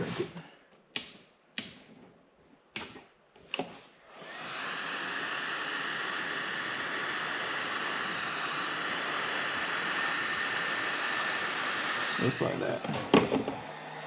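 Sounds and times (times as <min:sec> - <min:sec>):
heat gun blowing: 0:04.0 - 0:14.0.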